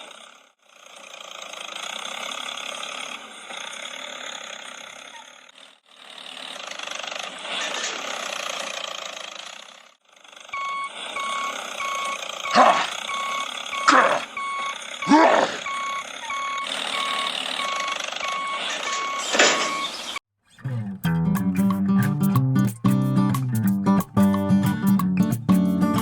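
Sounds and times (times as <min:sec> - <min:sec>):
engine-like noise: 0:00.0 - 0:20.8
reversing alarm beeping: 0:10.6 - 0:20.2.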